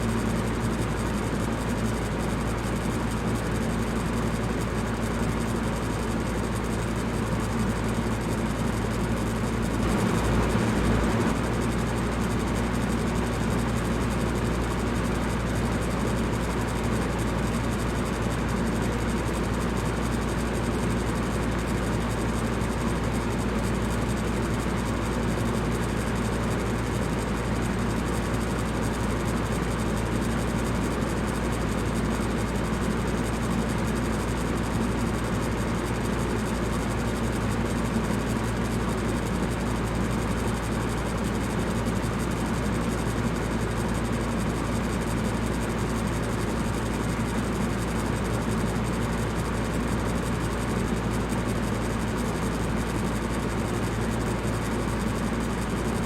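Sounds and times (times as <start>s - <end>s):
electric fan running: 8.7s - 16.8s.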